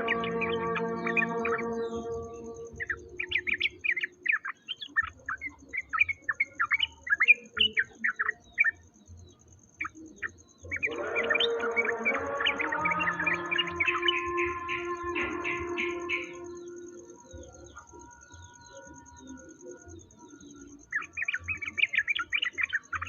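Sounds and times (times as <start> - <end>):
pitched drone with overtones: 0.0 - 2.8
songbird chirping: 0.0 - 23.0.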